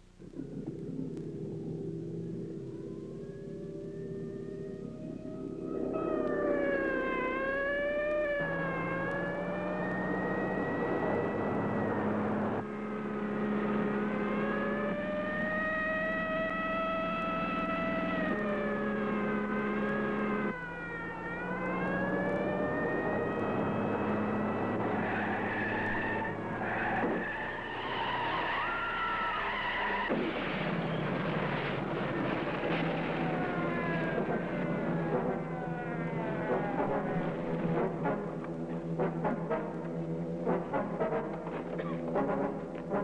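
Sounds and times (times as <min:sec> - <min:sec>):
car engines revving: 0:00.2 - 0:43.0
tire squeals: 0:21.6 - 0:37.2.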